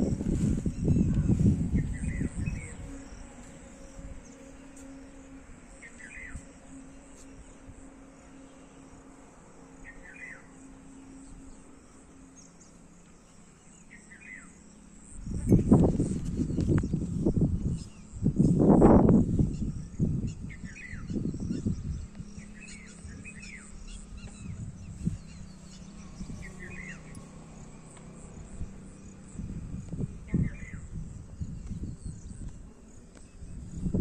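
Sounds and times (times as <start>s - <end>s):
low microphone rumble: 0.0s - 6.5s, 15.0s - 34.0s
high insect trill: 0.0s - 34.0s.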